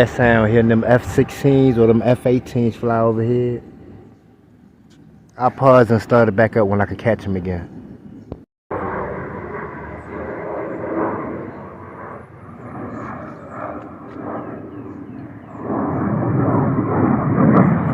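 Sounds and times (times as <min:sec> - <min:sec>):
jet engine rumble: 0:00.0 - 0:17.9.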